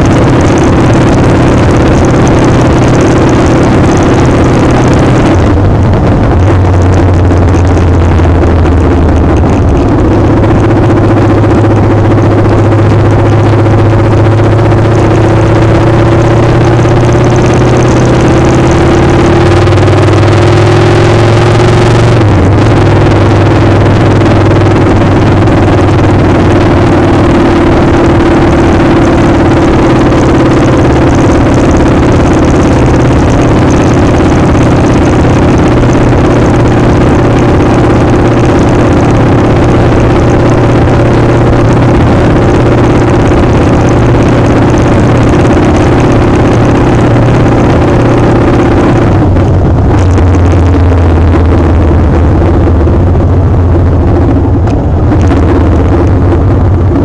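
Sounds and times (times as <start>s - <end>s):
motorcycle engine running: 0.0s - 57.0s
wind noise on microphone: 0.0s - 57.0s.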